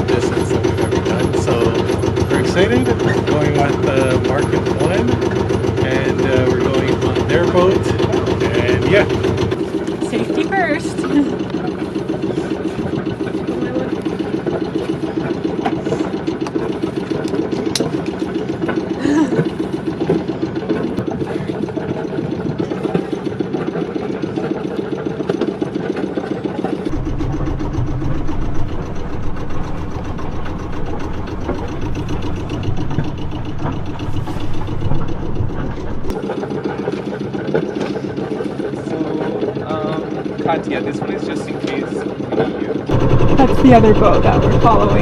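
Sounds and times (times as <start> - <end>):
deep low rumble: 0.0 - 5.2, 5.8 - 14.1, 26.9 - 36.2, 42.9 - 45.0
boat engine chugging: 0.0 - 45.0.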